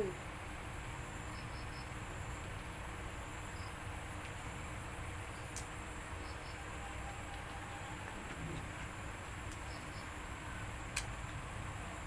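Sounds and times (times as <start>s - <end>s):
faint background noise: 0.0s - 12.0s
insect-like chirps: 1.2s - 2.0s, 3.5s - 3.8s, 5.3s - 8.1s, 9.4s - 10.2s.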